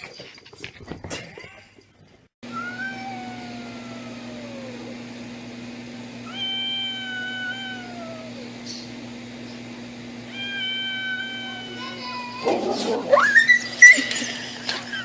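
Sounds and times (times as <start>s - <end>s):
cat meowing: 2.5s - 4.9s, 6.2s - 8.5s, 10.3s - 12.5s.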